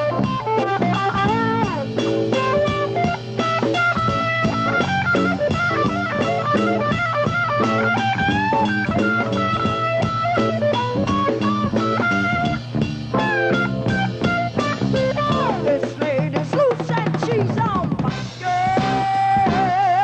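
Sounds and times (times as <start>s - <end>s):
bass: 0.0s - 20.0s
drum kit beat: 0.0s - 20.0s
lead guitar with bent notes: 0.0s - 20.0s.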